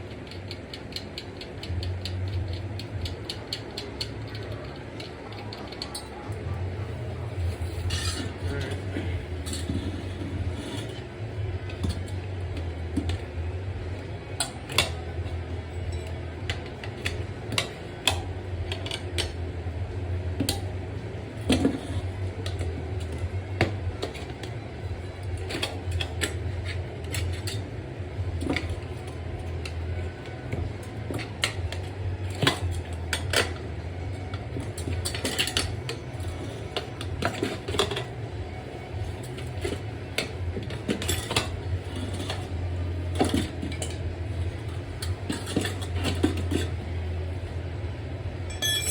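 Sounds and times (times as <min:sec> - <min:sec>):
steady low hum: 0:00.0 - 0:48.9
metal tools clinking on wheel rim: 0:48.4 - 0:48.9.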